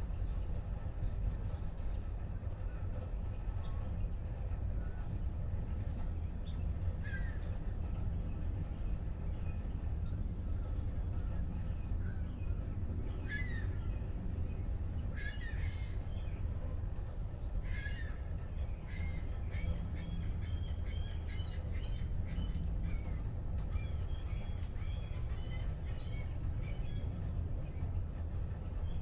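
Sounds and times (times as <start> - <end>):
steady low rumble: 0.0 - 29.0
birds cawing: 6.8 - 8.7, 10.0 - 16.5, 17.4 - 27.5.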